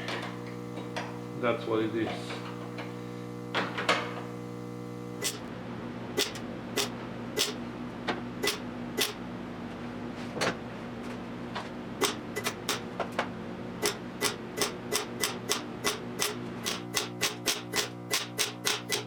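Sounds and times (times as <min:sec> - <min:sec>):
steady low hum: 0:00.0 - 0:10.0
hammer tapping on sheet steel: 0:13.8 - 0:19.0.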